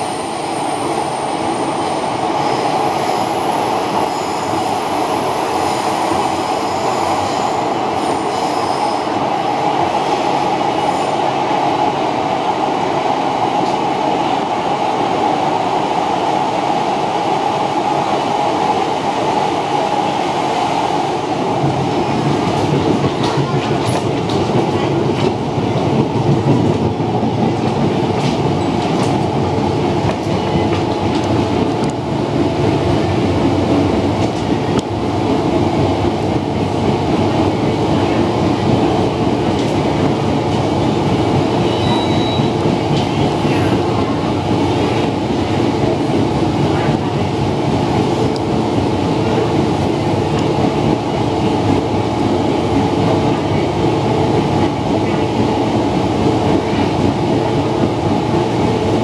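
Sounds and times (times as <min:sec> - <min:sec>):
wheels rumbling on rail: 0:00.0 - 0:59.0
rail clicks: 0:21.4 - 0:59.0.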